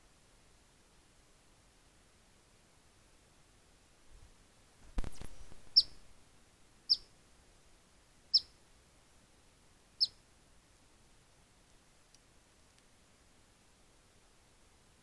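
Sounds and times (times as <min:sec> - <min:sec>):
bird chip calls: 0:05.1 - 0:06.0, 0:06.9 - 0:07.1, 0:08.3 - 0:08.5.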